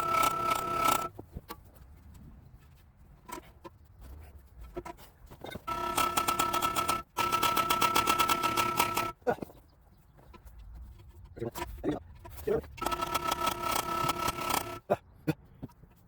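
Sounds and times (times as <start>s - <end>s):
mechanical buzzing with rattle: 0.0s - 1.1s, 5.4s - 9.2s, 11.6s - 14.9s.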